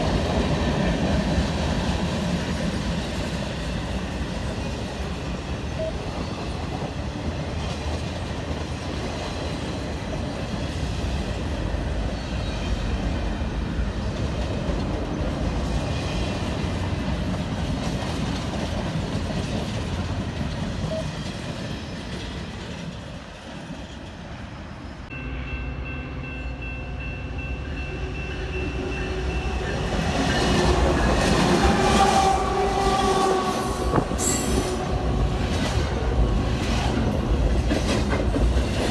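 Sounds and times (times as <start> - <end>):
train rumbling on rails: 0.0 - 38.9
held train horn tones: 25.1 - 36.8.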